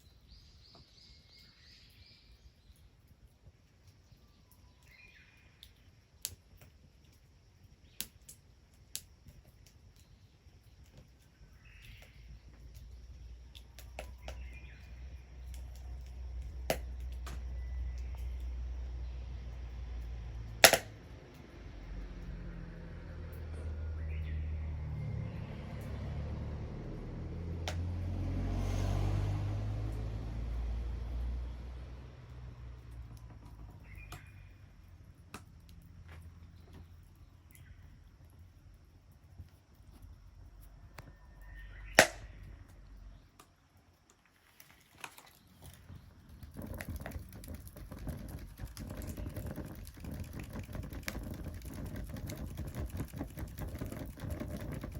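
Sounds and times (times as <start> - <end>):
wood fire crackling: 2.2 - 54.9
sharp pops and snaps: 2.6 - 22.3, 27.4 - 28.2, 32.1 - 54.9
low background rumble: 10.1 - 44.0, 45.7 - 54.9.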